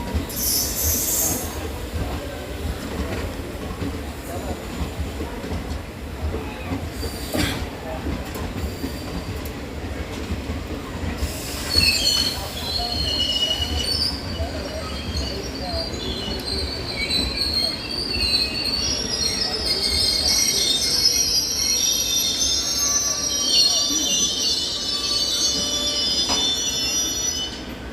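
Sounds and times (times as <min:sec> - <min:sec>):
train wheels rumbling on rail: 0:00.0 - 0:27.9
brake and wheel squeal: 0:11.2 - 0:27.8.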